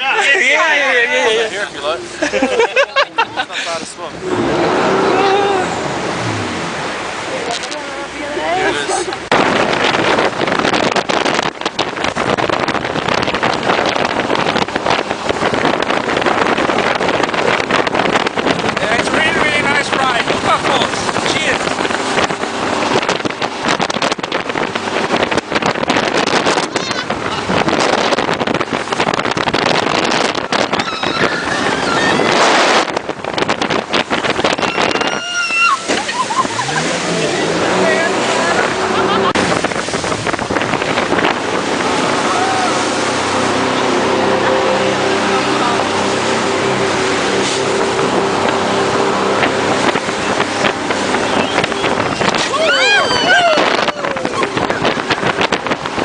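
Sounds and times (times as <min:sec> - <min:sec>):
jet boat engine and water rush: 0:00.0 - 0:56.0
wind buffeting microphone: 0:00.0 - 0:56.0
sharp knocks or splashes: 0:09.2 - 0:18.9.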